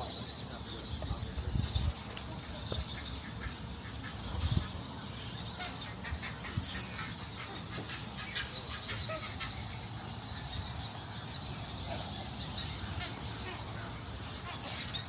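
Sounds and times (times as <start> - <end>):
wind buffeting microphone: 0.0 - 8.4
insects chirring: 0.0 - 15.0.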